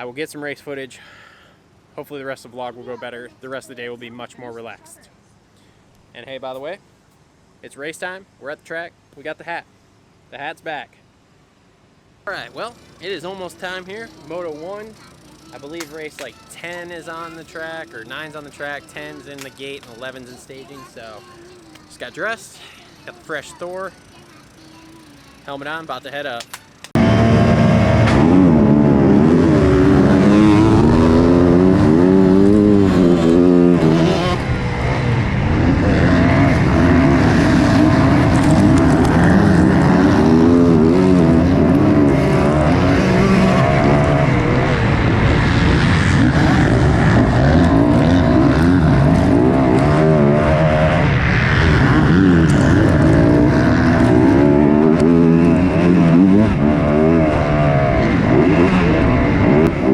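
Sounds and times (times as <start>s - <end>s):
dirt bike engines revving: 12.3s - 59.9s.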